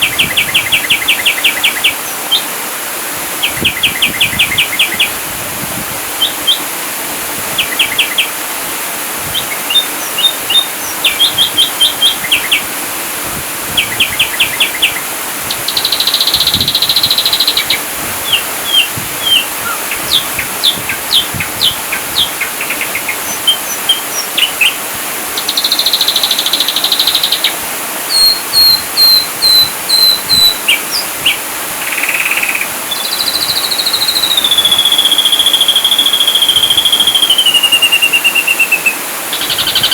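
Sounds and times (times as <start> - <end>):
bird singing varied song: 0.0 - 2.5, 3.4 - 5.2, 6.2 - 6.7, 7.6 - 8.4, 9.3 - 12.7, 13.8 - 24.8, 25.4 - 39.9.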